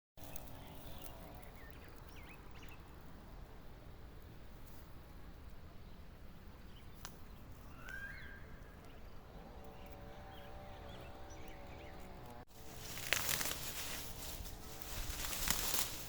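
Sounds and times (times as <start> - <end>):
faint bird chirps: 5.7 - 12.1
rustling and crackling: 12.2 - 16.0.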